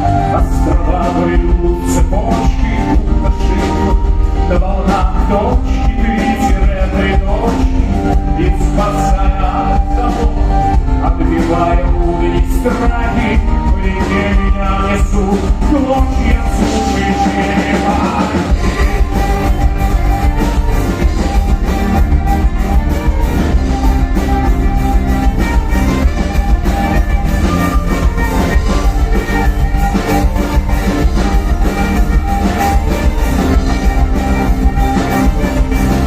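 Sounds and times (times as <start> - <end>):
folk-rock band playing live: 0.0 - 36.0
person singing: 0.0 - 36.0
steady drum beat: 0.0 - 36.0.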